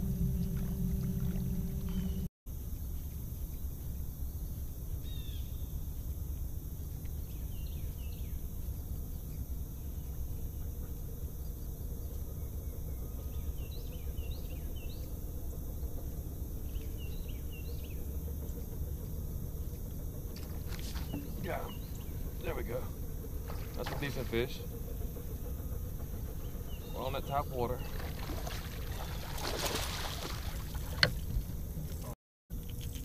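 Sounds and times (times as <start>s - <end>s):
steady low rumble: 0.0s - 2.8s, 4.2s - 33.0s
small birds chirping: 16.6s - 30.2s.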